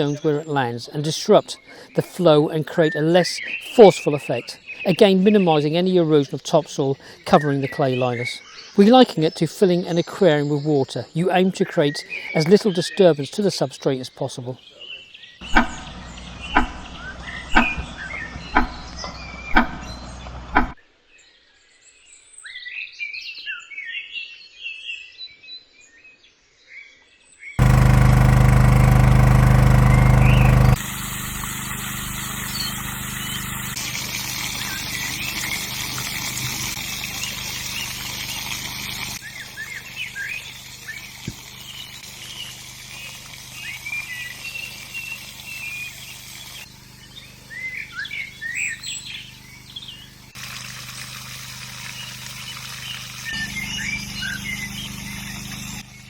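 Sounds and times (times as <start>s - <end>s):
small birds singing and chirping: 0.0s - 20.5s, 27.6s - 50.4s, 51.8s - 56.0s
loud engine-like hum: 15.4s - 20.8s, 27.6s - 56.0s
sharp knocks: 15.5s - 15.8s, 16.5s - 16.9s, 17.5s - 17.9s, 18.5s - 19.9s, 20.5s - 20.8s.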